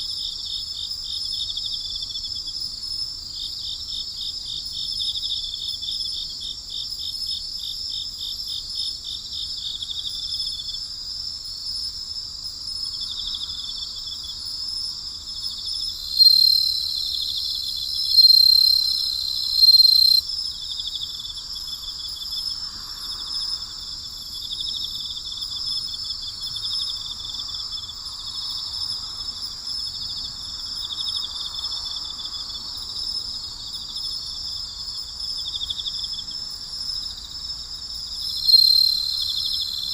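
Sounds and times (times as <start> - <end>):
crickets trilling: 0.0 - 39.9
loud even cricket trill: 15.6 - 24.2, 38.1 - 39.9.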